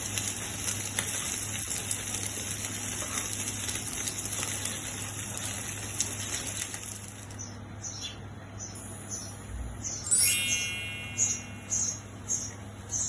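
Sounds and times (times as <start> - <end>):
oil sizzling in a pan: 0.0 - 7.4.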